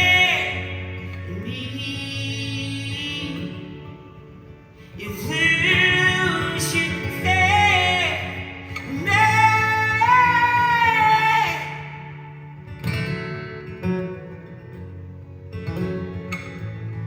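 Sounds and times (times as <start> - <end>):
person singing long sliding notes: 0.0 - 3.7, 5.0 - 12.7
guitar: 0.0 - 17.0.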